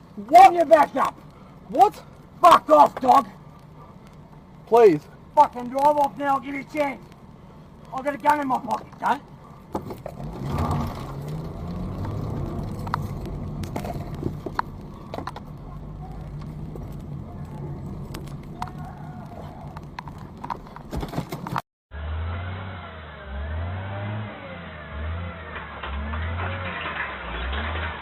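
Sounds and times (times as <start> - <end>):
dull wavering engine: 9.3 - 20.8, 21.9 - 28.0.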